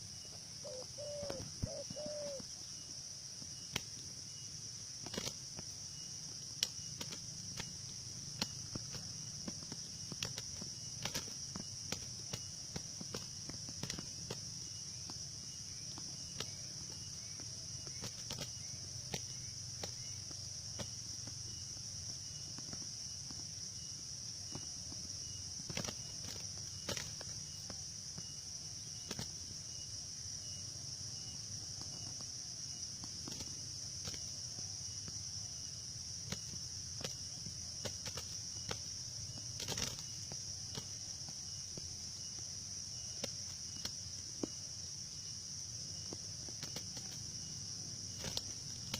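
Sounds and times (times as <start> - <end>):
high-pitched insect drone: 0.0 - 2.8.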